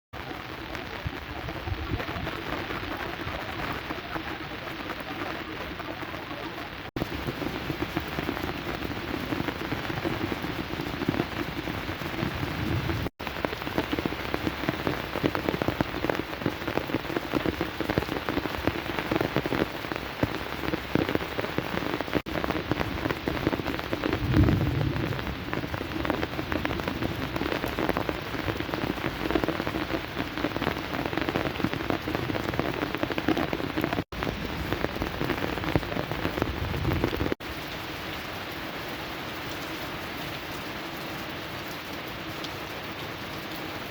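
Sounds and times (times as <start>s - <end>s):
heavy rain pouring: 0.2s - 43.9s.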